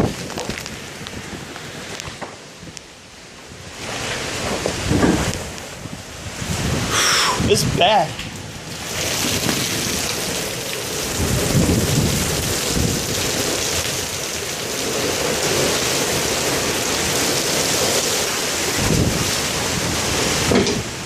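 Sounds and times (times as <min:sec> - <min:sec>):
heavy rain: 0:00.0 - 0:21.0
strong gusting wind: 0:00.0 - 0:21.0
low thunder rumbling: 0:03.6 - 0:18.0, 0:18.6 - 0:21.0.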